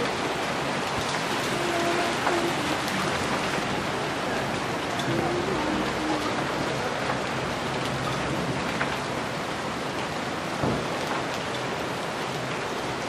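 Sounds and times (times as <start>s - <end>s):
hail and rain falling: 0.0s - 13.0s
hailstones ticking: 0.0s - 13.0s.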